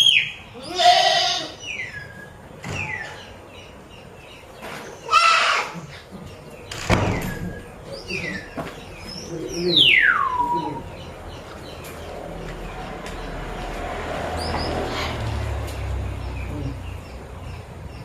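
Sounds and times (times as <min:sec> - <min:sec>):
bird chirps: 0:00.0 - 0:00.8, 0:01.5 - 0:18.0.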